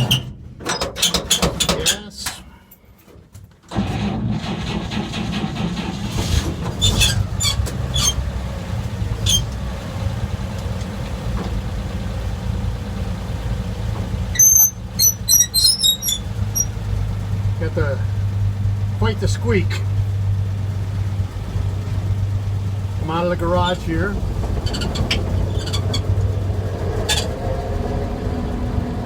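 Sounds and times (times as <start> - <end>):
truck engine starting and running: 0.0 - 29.0
high-pitched squeaks: 14.3 - 16.8, 24.6 - 26.2, 27.0 - 27.4.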